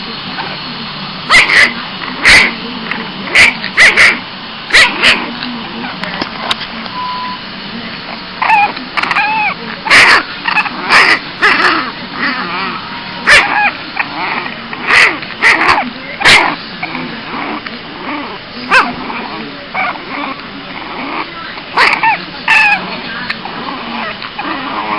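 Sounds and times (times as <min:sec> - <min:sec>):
puppy barking and yapping: 0:01.3 - 0:02.5, 0:03.3 - 0:05.3, 0:08.4 - 0:12.6, 0:13.2 - 0:17.0, 0:18.1 - 0:20.4, 0:21.0 - 0:22.9
puppy whining yips: 0:08.4 - 0:10.7, 0:21.8 - 0:22.8.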